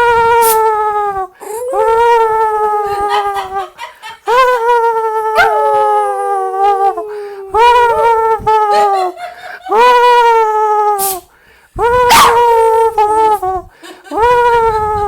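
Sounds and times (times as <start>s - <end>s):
dog howling whines: 5.2s - 9.1s, 11.9s - 12.9s.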